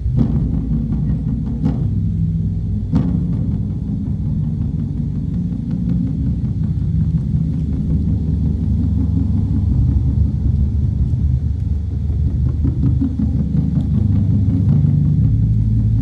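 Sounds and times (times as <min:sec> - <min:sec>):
large drums rolling: 0:00.0 - 0:16.0.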